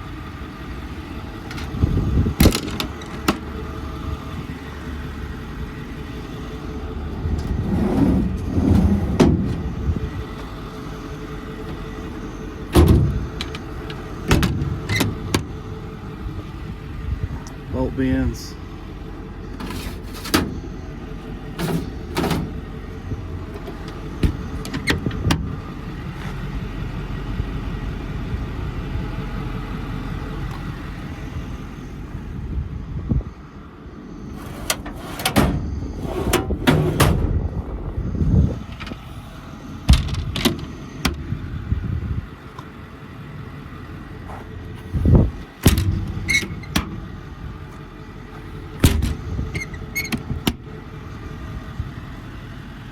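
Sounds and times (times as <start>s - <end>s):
metal doors clacking and thudding: 1.4s - 3.6s, 7.3s - 10.4s, 11.6s - 15.8s, 21.5s - 22.8s, 23.5s - 25.6s, 34.3s - 39.0s, 39.8s - 41.3s, 45.2s - 47.6s, 48.4s - 50.8s
low rumble: 3.5s - 19.6s, 20.6s - 51.9s.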